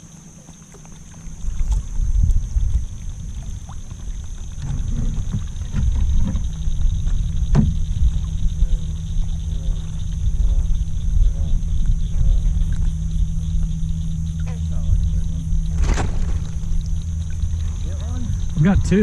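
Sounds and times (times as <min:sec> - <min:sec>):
frogs croaking: 0:00.0 - 0:19.0
kayak moving through water: 0:00.0 - 0:19.0
night insects chorus: 0:00.0 - 0:19.0.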